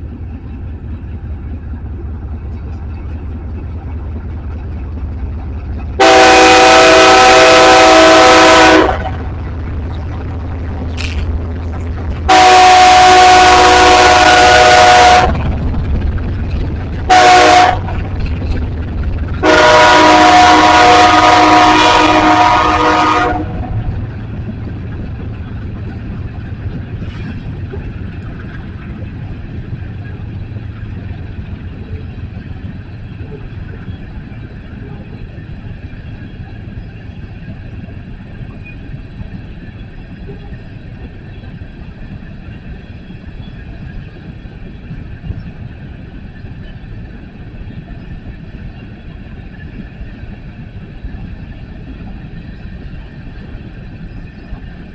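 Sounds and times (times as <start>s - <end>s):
low rumble: 0.0s - 54.9s
locomotive air horn blasts: 6.0s - 9.2s, 12.3s - 15.4s, 17.1s - 17.9s, 19.4s - 23.8s.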